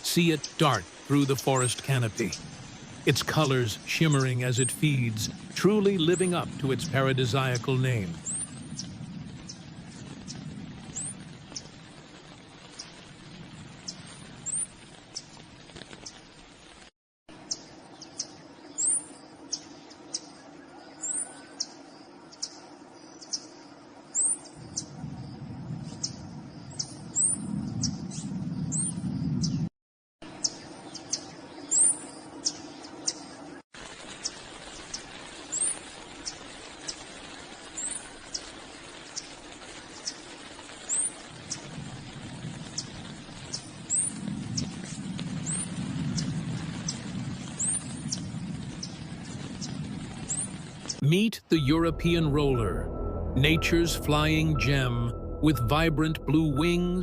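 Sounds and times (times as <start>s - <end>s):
low background hiss: 0.0s - 8.3s
small birds chirping: 0.0s - 13.1s, 17.4s - 29.7s, 30.4s - 41.7s, 42.6s - 51.0s.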